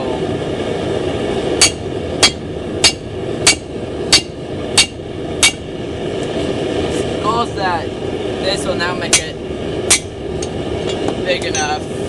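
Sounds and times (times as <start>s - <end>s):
hammer striking steel: 1.6s - 5.7s, 9.1s - 10.1s.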